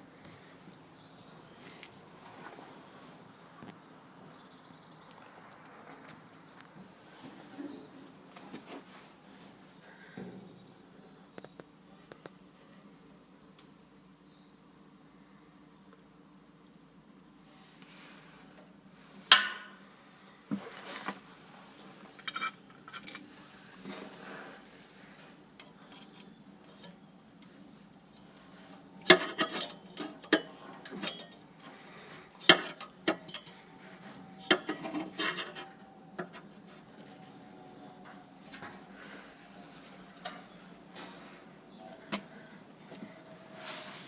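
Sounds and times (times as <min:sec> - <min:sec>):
metallic clinks and knocks: 0:00.2 - 0:00.4, 0:29.1 - 0:31.5, 0:32.4 - 0:33.6.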